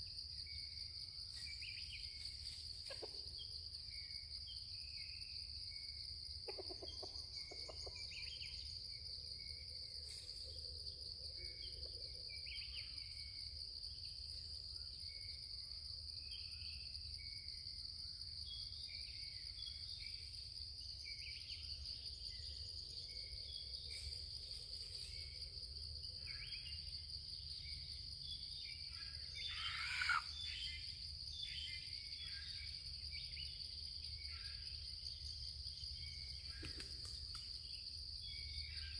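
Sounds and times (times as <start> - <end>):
insects buzzing: 0.0 - 38.9
small birds chirping: 26.2 - 38.9
loud bird call: 29.4 - 30.5.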